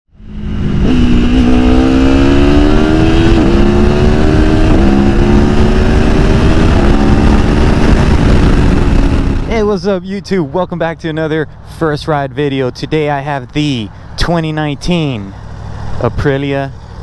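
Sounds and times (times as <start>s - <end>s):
motorcycle engine accelerating through gears: 0.1s - 9.6s, 15.3s - 17.0s.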